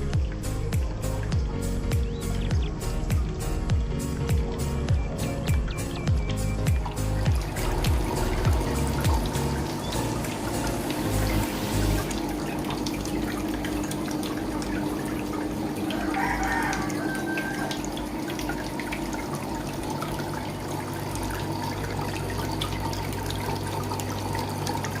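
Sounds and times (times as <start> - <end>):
low hum: 0.0 - 15.9
water trickling: 0.0 - 25.0.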